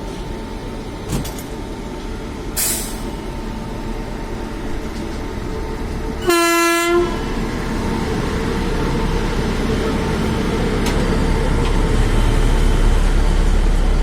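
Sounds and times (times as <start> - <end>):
low rumble of train: 0.0 - 14.0
train horn blast: 6.2 - 7.3.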